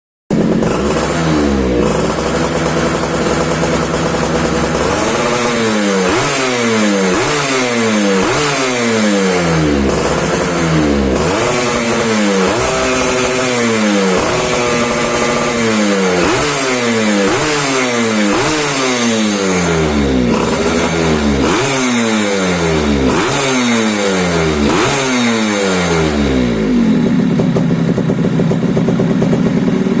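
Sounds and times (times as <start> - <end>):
engine idling and revving: 0.3 - 30.0.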